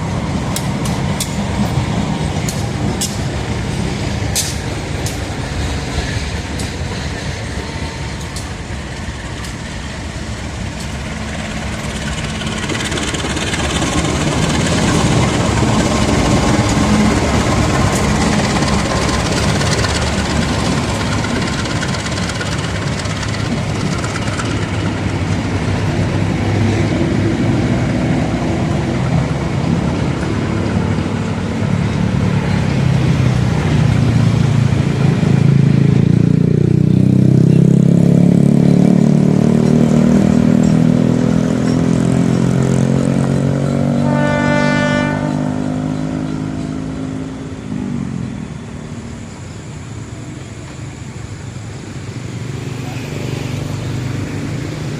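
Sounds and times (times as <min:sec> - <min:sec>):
locomotive engine droning: 0:00.0 - 0:54.9.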